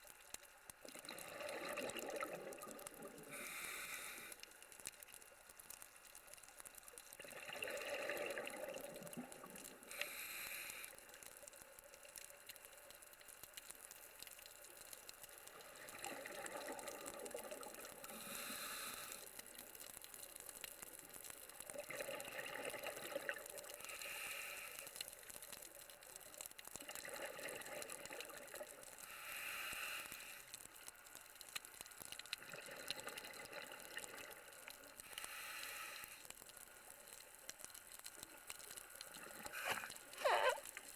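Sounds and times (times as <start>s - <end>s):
diver breathing through regulator: 3.3s - 4.4s, 9.9s - 11.0s, 18.1s - 19.4s, 23.9s - 25.0s, 29.1s - 30.6s, 35.0s - 36.3s, 39.3s - 40.8s
regulator hiss: 3.3s - 4.4s, 9.9s - 11.0s, 18.1s - 19.3s.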